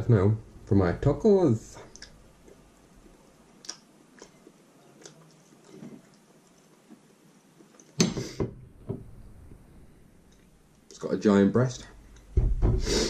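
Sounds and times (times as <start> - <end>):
wet mouth clicks: 1.9 - 2.6, 3.6 - 8.1
loud crunch of chewing: 3.6 - 7.1.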